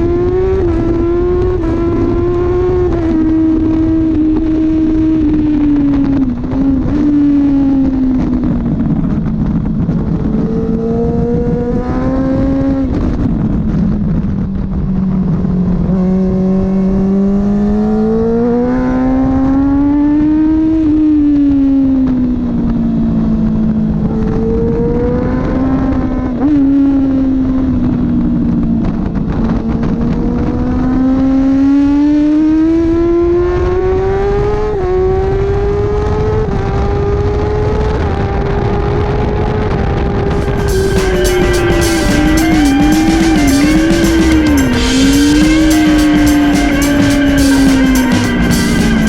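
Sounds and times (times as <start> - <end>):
wind rush: 0.0 - 17.2, 39.7 - 49.0
motorcycle engine revving: 0.0 - 49.0.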